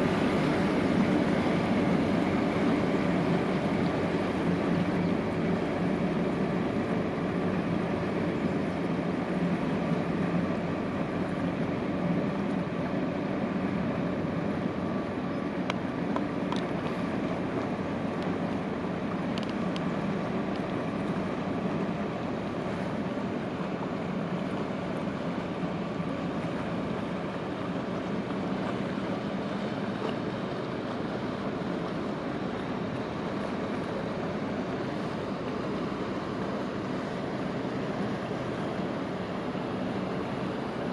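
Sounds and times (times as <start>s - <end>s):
boat engine drone: 0.0s - 40.9s
water rushing along hull: 0.0s - 40.9s.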